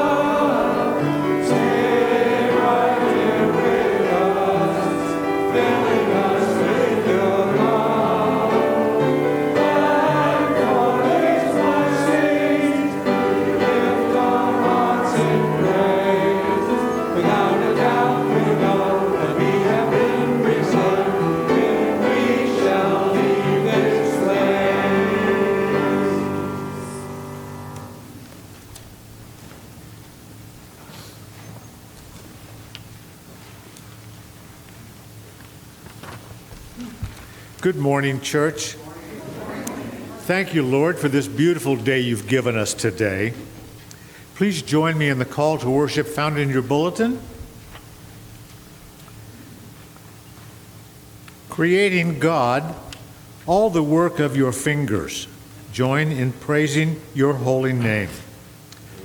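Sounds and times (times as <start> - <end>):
choir singing sacred piece: 0.0 - 28.4, 37.8 - 43.6.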